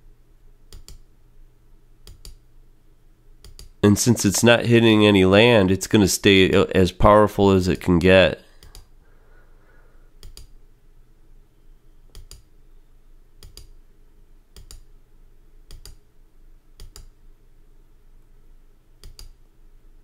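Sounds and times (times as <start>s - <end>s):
faint low hum: 0.0s - 20.0s
computer mouse clicks: 0.7s - 1.1s, 2.0s - 2.4s, 3.4s - 3.8s, 8.6s - 8.9s, 10.2s - 10.6s, 12.1s - 12.5s, 13.4s - 13.8s, 14.5s - 14.9s, 15.7s - 16.0s, 16.8s - 17.2s, 19.0s - 19.4s.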